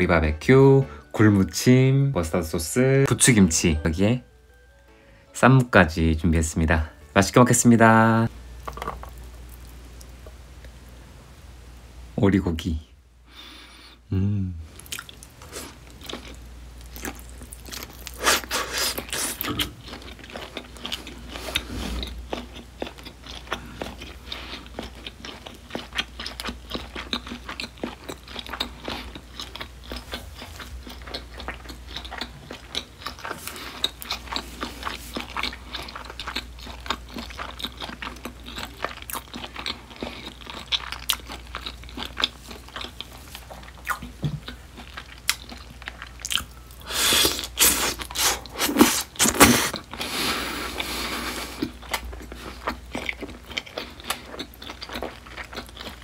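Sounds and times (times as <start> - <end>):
wet chewing and biting: 14.9 - 46.5, 47.2 - 50.1.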